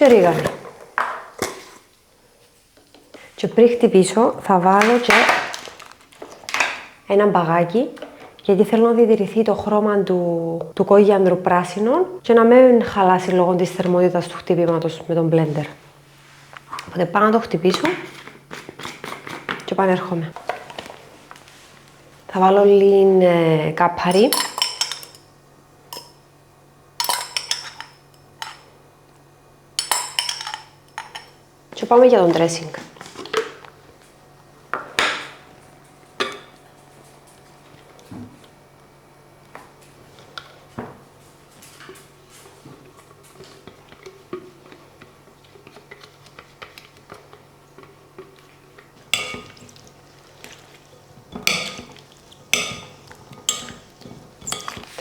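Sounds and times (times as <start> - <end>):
utensil clinking against bowl: 24.1 - 25.3, 27.0 - 28.7, 29.8 - 31.4, 49.1 - 49.8, 51.3 - 54.9
spoon clinking and scraping dish: 29.8 - 31.3, 52.6 - 55.0.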